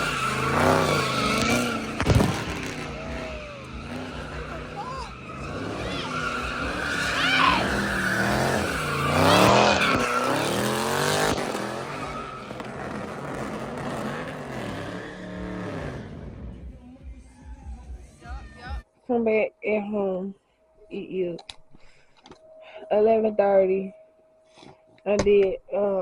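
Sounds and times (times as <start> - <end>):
car engine revving: 0.0 - 16.9.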